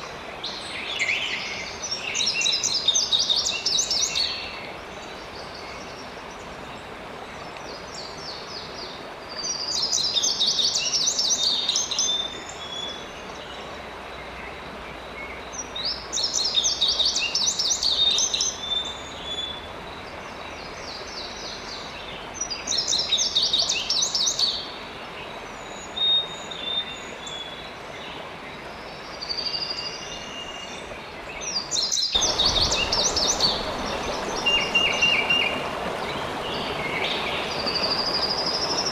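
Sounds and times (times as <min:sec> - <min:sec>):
running water: 0:00.0 - 0:38.9
songbird chirping: 0:00.0 - 0:38.9.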